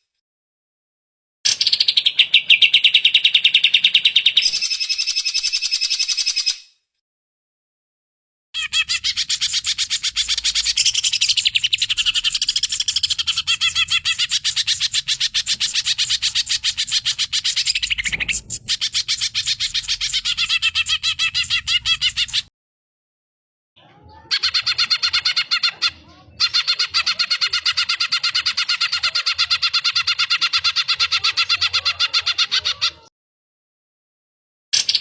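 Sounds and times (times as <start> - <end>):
bird singing high chattering notes: 8.6 - 22.5.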